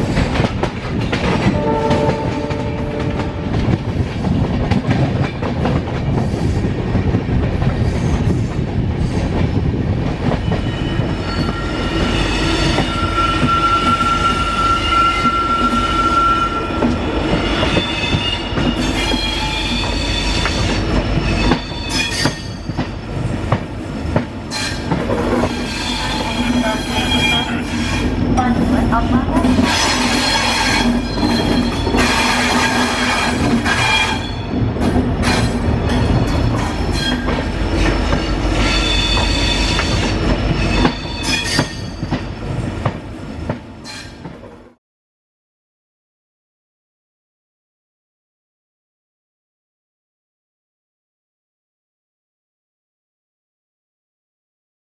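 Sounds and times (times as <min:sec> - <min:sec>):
train wheels squealing on rails: 0:06.2 - 0:06.7, 0:07.8 - 0:09.4, 0:10.2 - 0:23.3, 0:24.5 - 0:28.3, 0:29.6 - 0:42.7, 0:43.8 - 0:44.4.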